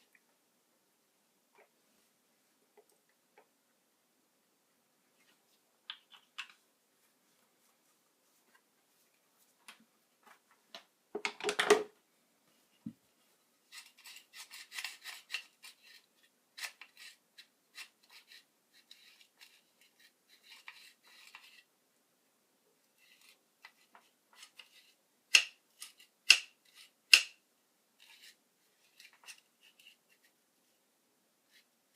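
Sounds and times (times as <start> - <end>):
scraping and rubbing strokes: 12.6 - 21.7, 28.0 - 30.4.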